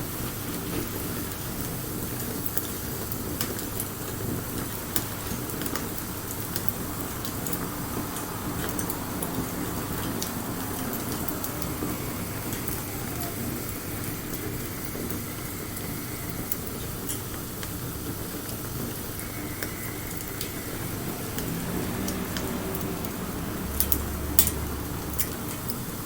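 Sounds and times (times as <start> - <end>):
bonfire hissing: 0.0 - 26.0
crackles and pops of burning wood: 0.2 - 26.0.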